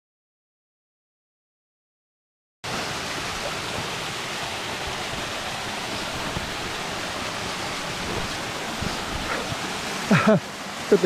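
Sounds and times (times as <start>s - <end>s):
waterfall cascading over rocks: 2.6s - 11.0s.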